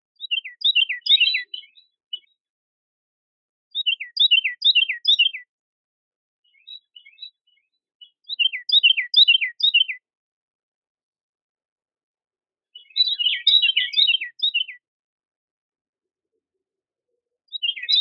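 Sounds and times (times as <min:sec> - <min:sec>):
songbird whistling: 0:00.2 - 0:02.3, 0:03.7 - 0:05.5, 0:08.0 - 0:10.0, 0:12.8 - 0:14.8, 0:17.5 - 0:18.0.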